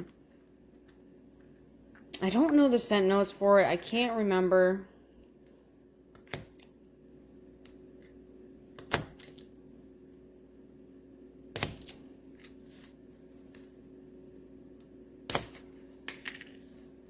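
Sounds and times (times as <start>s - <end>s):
faint steady hum: 0.0s - 17.0s
knife chopping wax: 8.7s - 9.4s, 11.5s - 12.5s, 15.3s - 16.4s.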